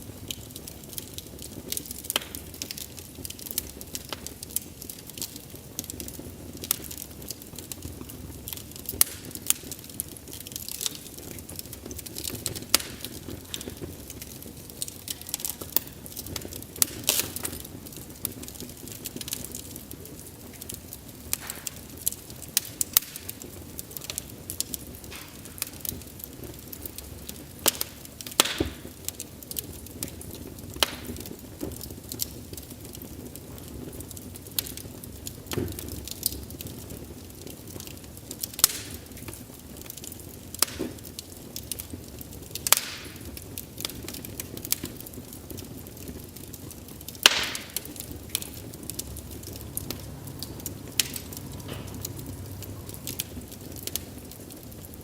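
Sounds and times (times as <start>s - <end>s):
burning logs crackling and popping: 0.0s - 55.0s
flames fluttering: 0.0s - 55.0s.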